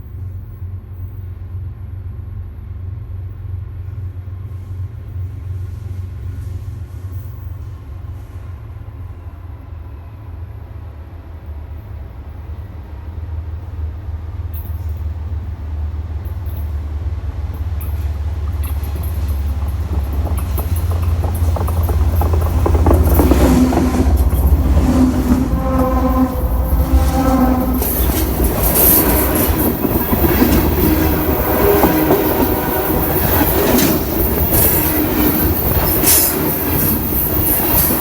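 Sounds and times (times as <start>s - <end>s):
freight train rumbling: 0.0s - 38.0s
train clattering: 14.3s - 38.0s
sharp clicks from rails: 16.2s - 38.0s.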